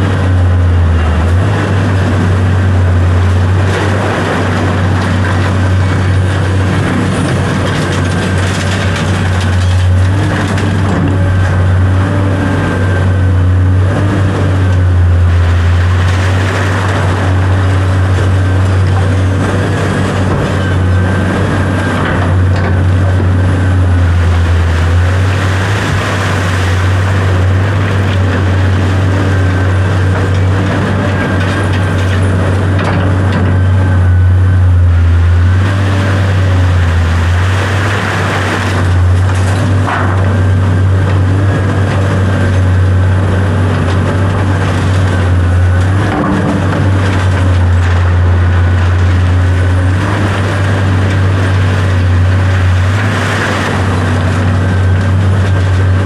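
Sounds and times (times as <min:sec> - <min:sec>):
large engine running: 0:00.0 - 0:56.0.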